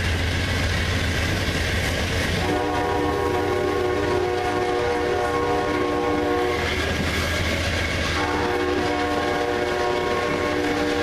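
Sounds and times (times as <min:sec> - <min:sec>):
passenger train rolling past: 0:00.0 - 0:11.0
locomotive air horn: 0:02.4 - 0:06.8, 0:08.1 - 0:11.0.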